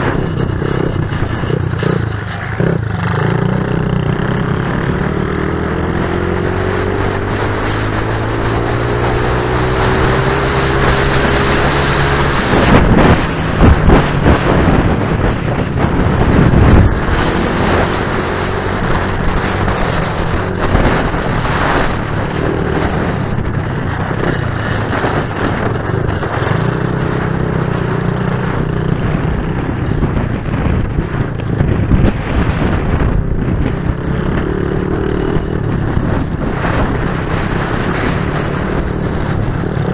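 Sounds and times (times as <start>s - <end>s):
pit bike engines running: 0.0s - 39.9s.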